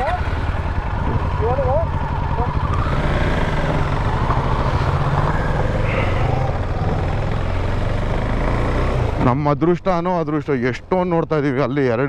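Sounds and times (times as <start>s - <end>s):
motorcycle engine running: 0.0s - 9.3s
wind and road noise: 0.0s - 12.0s.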